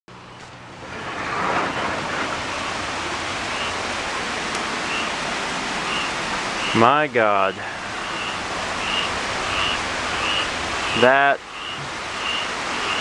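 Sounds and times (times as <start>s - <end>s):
heavy rain pouring: 0.1s - 13.0s.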